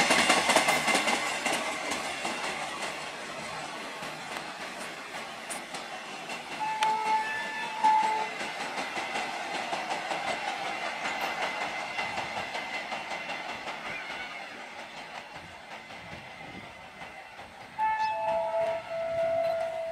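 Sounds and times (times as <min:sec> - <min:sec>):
freight wagon wheels rumbling on rails: 0:00.0 - 0:19.9
horn-like tone: 0:06.6 - 0:08.3, 0:17.8 - 0:19.9.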